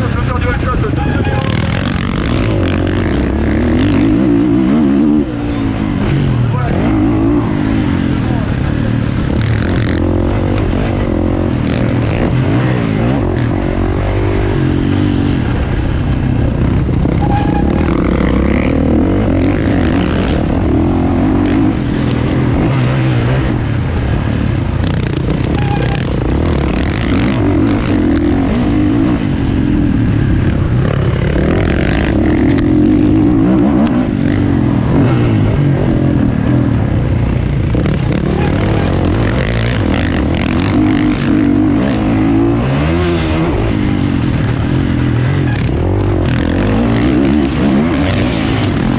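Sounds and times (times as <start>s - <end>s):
motocross bike engine revving: 0.0s - 48.9s.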